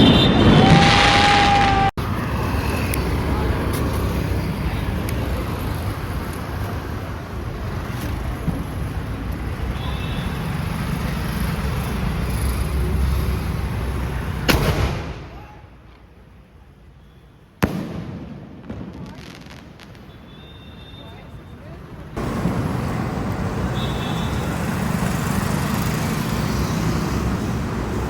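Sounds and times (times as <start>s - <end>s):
firework shell bang: 14.5s - 15.4s
rumbling background noise: 21.4s - 28.0s.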